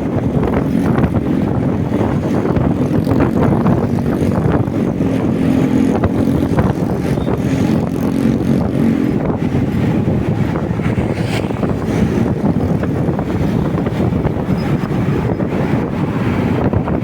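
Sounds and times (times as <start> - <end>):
motorcycle engine hum: 0.0 - 17.0
road noise: 0.0 - 17.0.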